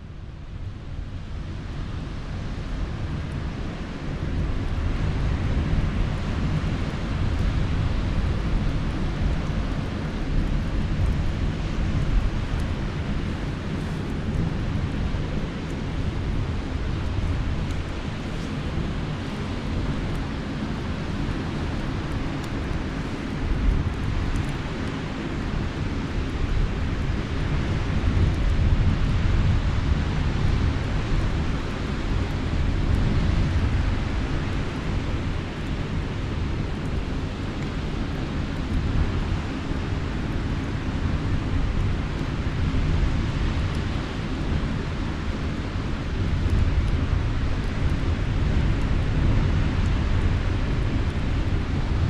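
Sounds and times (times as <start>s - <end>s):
wind: 0.0s - 52.0s.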